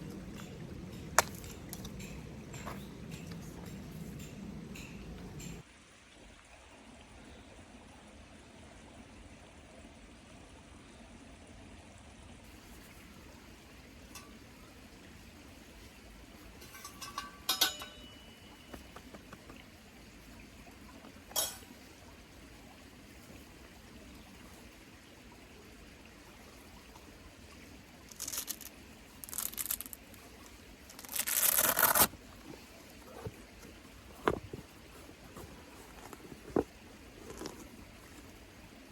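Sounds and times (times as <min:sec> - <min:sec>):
ash scraping and crunching: 0:30.9 - 0:37.7.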